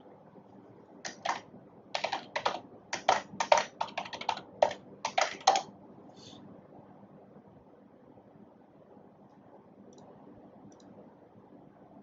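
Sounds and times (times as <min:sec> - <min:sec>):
typing on computer keyboard: 0:01.1 - 0:05.7.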